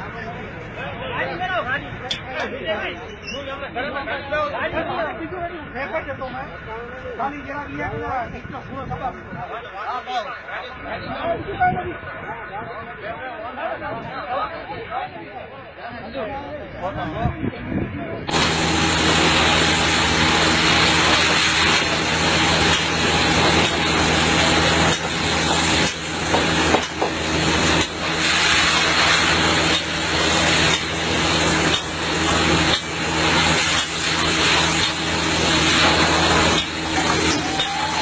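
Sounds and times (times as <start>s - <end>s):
heavy equipment engine running: 18.2s - 38.0s
loud rushing noise: 18.2s - 38.0s.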